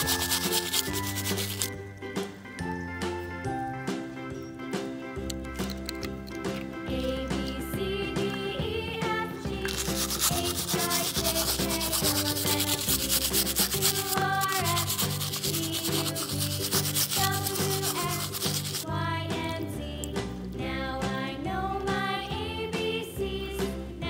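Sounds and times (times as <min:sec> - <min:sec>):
bristle brush scrubbing: 0:00.0 - 0:01.8, 0:09.6 - 0:18.8
background music: 0:00.0 - 0:24.0.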